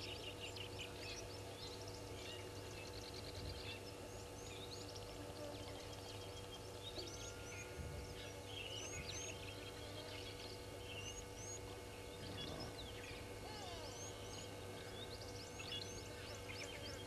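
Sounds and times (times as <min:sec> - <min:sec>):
low electrical hum: 0:00.0 - 0:17.0
birds chirping and whistling: 0:06.9 - 0:17.0.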